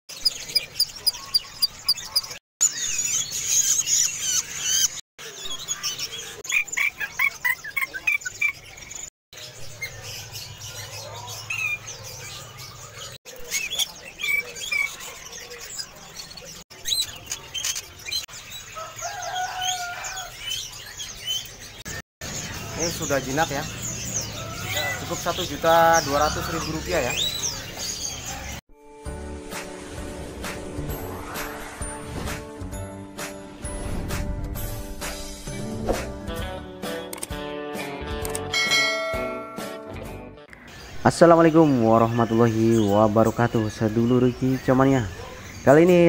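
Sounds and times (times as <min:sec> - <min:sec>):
caged birds chirping: 0:00.1 - 0:28.6, 0:40.4 - 0:46.0.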